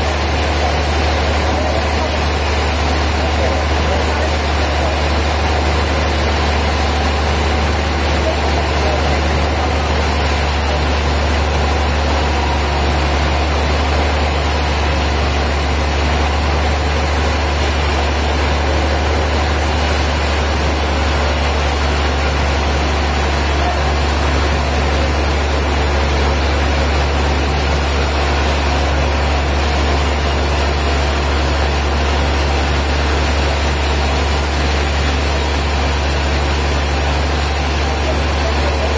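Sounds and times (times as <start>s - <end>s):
heavy engine humming steadily: 0.0s - 38.9s.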